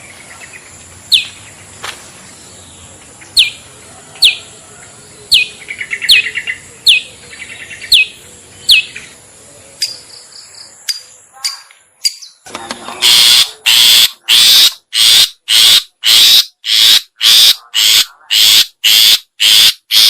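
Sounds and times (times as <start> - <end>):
bird stuttering chatter: 12.9 - 20.0.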